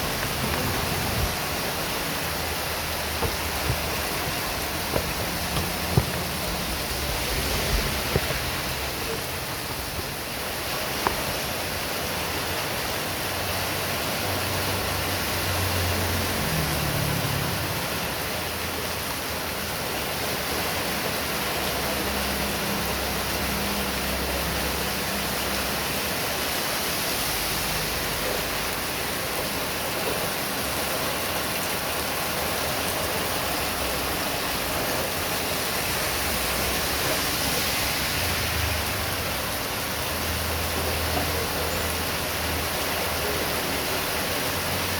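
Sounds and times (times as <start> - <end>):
low rumbles: 0.0 - 10.4
heavy rain hissing: 0.0 - 44.9.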